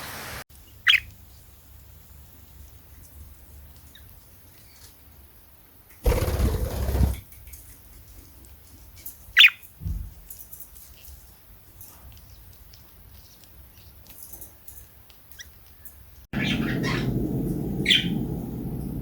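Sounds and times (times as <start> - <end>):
bird wings flapping: 6.0 - 7.4.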